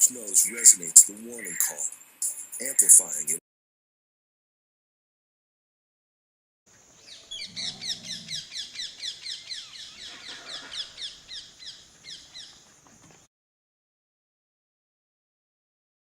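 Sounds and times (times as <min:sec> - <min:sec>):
high downward-sweeping animal chirps: 0:00.0 - 0:03.2, 0:07.0 - 0:12.6.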